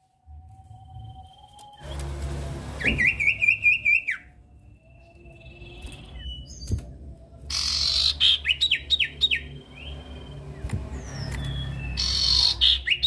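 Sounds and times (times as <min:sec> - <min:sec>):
bird calling: 0:02.7 - 0:04.3, 0:07.5 - 0:10.0, 0:11.0 - 0:13.0.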